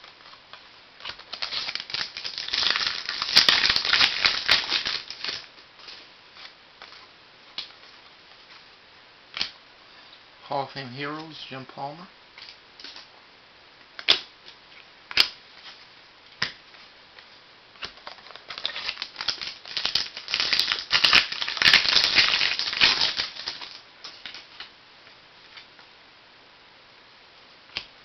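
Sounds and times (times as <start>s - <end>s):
packaging crinkling: 1.0s - 7.0s, 17.8s - 24.6s.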